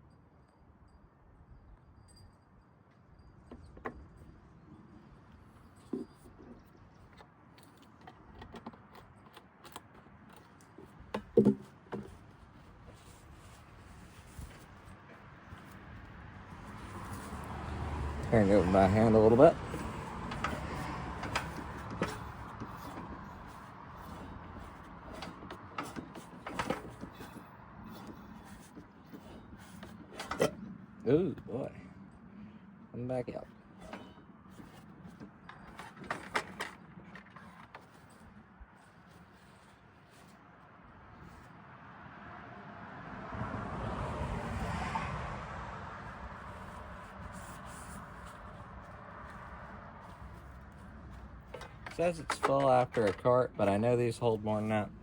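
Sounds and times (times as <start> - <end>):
vehicle passing by: 14.9 - 25.3, 40.4 - 51.8.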